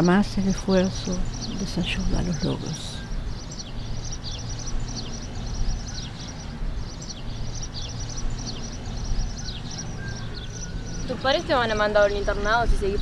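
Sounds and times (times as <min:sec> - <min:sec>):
low steady rumble: 0:00.0 - 0:13.0
small birds chirping: 0:00.0 - 0:13.0.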